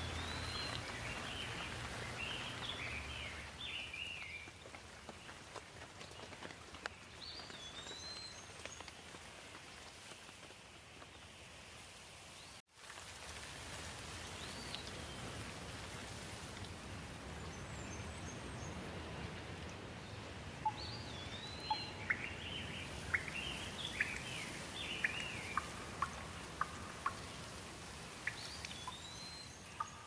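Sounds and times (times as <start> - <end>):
rain hissing: 0.0 - 5.0.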